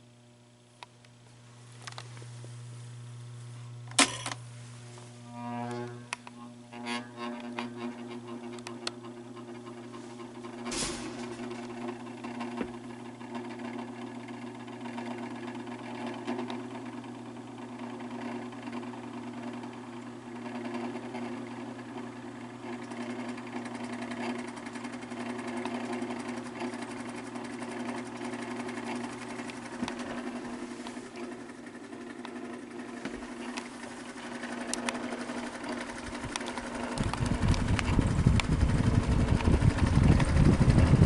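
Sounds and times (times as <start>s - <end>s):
electric fan motor humming: 0.0s - 41.0s
rattling grinding bearings: 5.2s - 12.6s.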